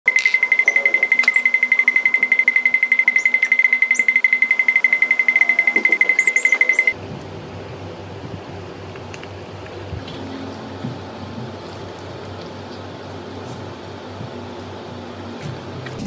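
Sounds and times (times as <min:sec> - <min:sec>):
rapid electronic beeping: 0:00.1 - 0:07.0.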